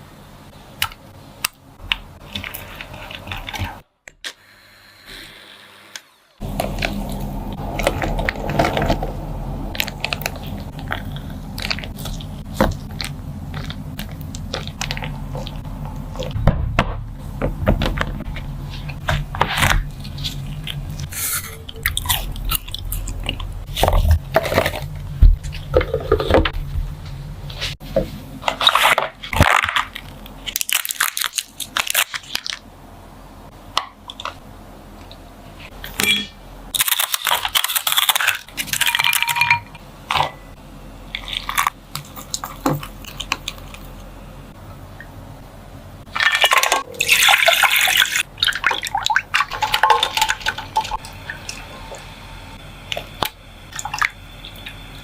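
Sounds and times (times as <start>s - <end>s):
low steady hum: 0.0s - 55.0s
crunchy food being chewed: 9.7s - 16.3s.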